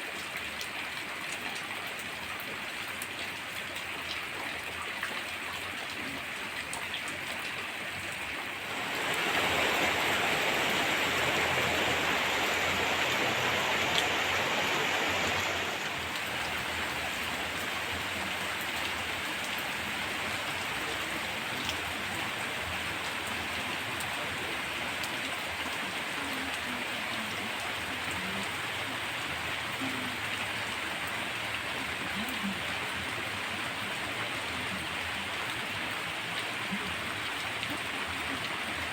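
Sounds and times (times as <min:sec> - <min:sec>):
heavy rain pouring: 0:05.3 - 0:38.9.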